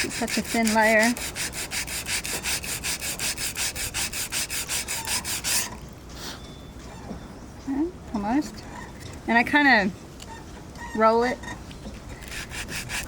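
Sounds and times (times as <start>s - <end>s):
sandpaper rubbing strokes: 0.0s - 5.8s, 12.2s - 13.0s.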